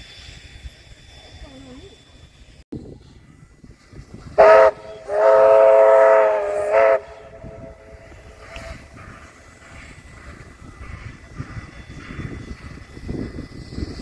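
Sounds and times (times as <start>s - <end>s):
steam locomotive whistle: 4.4s - 9.1s.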